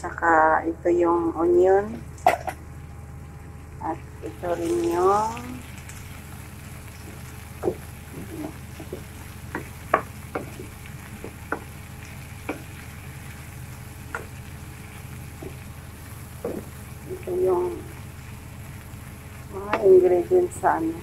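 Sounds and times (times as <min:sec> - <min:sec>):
chicken sizzling in a pan: 0:02.3 - 0:21.0
sharp pops and clicks: 0:07.0 - 0:11.8.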